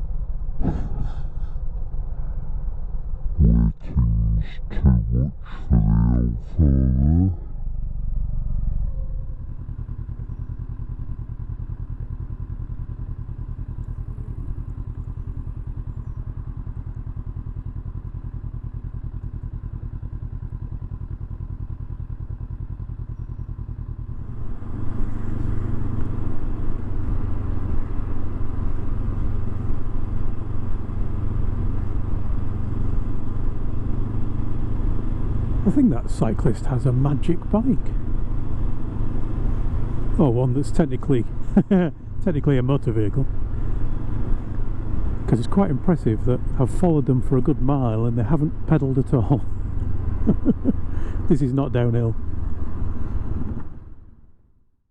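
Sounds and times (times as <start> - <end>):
motorcycle engine: 0.0 - 54.4.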